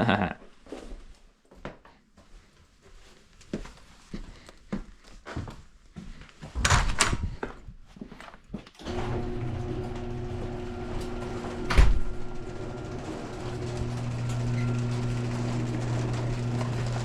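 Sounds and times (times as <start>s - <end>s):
garage door opener humming: 8.8s - 17.0s.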